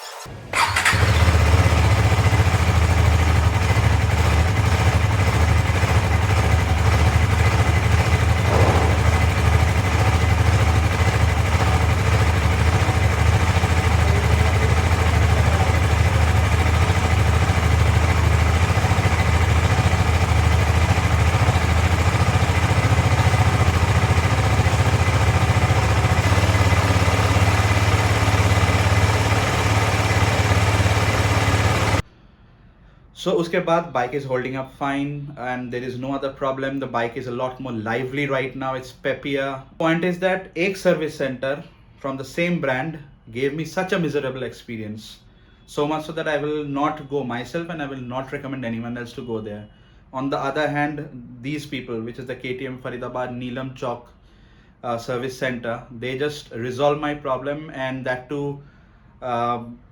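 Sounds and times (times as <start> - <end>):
motorcycle engine idling: 0.3 - 32.0.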